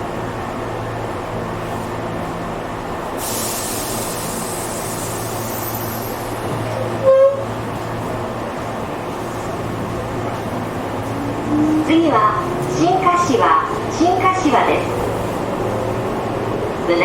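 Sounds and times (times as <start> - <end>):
train wheels rumbling on rail: 0.0 - 17.0
hiss: 3.2 - 6.3
train horn toot: 7.0 - 7.5.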